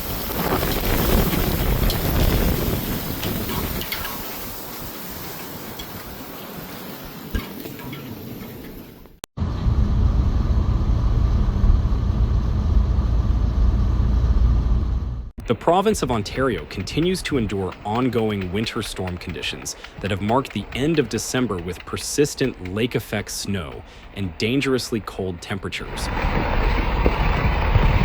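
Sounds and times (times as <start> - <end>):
storm wind on microphone: 0.0 - 7.9, 9.4 - 17.8, 25.8 - 28.0
steady low rumble: 9.4 - 28.0.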